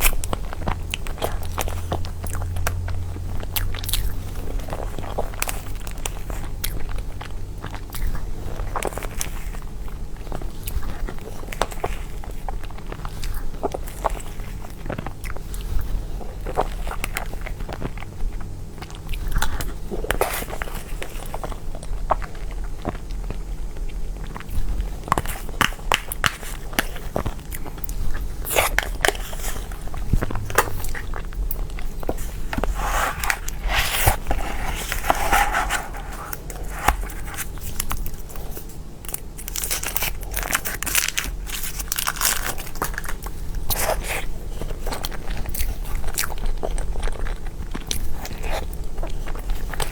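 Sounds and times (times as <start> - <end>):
person chewing cake: 0.0 - 49.9.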